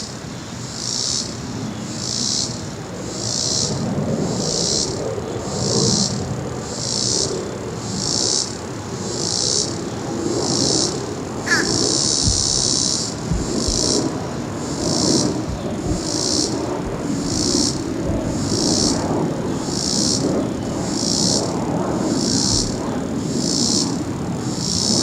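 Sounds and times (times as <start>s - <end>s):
insects buzzing in pulses: 0.0s - 25.0s
distant jet airliner rumble: 1.3s - 25.0s
rising chirp: 11.5s - 14.2s
short low thumps: 11.5s - 18.9s.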